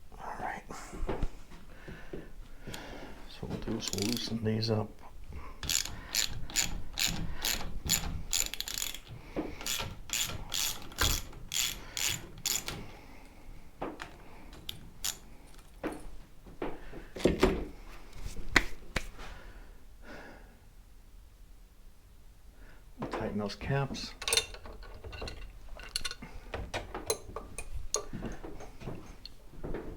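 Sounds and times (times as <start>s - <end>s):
tools and parts clunking: 3.4s - 4.4s, 5.6s - 12.9s, 23.0s - 29.9s
socket ratchet wrench clicking: 3.8s - 4.3s, 5.6s - 12.8s, 14.7s - 15.7s.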